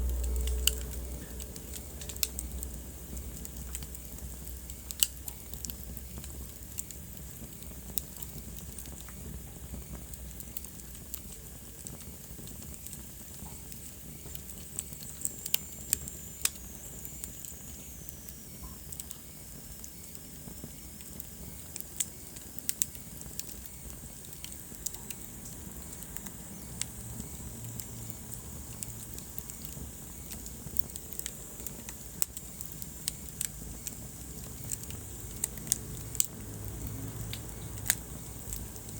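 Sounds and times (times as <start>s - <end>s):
low rush of flames: 0.0s - 17.8s, 19.0s - 38.9s
wood fire crackling and popping: 0.0s - 38.9s.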